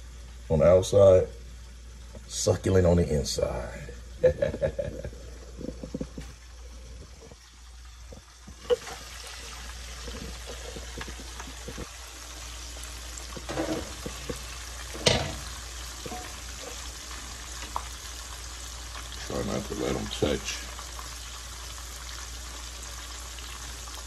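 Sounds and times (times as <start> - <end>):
shrimp sizzling in hot oil: 5.8 - 24.0.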